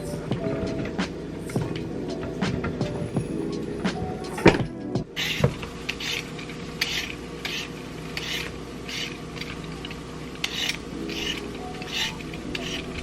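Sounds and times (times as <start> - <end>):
faint steady hum: 0.0 - 13.0
rasping scrapes: 5.2 - 9.2, 10.4 - 13.0.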